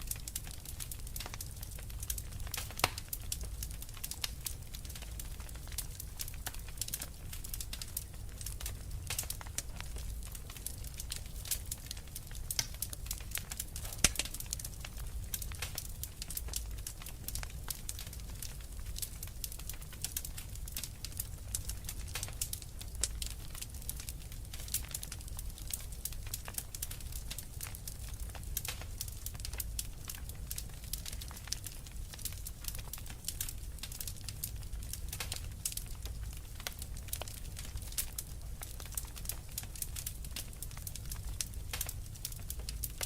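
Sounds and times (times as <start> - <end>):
fire crackling: 0.0 - 43.0.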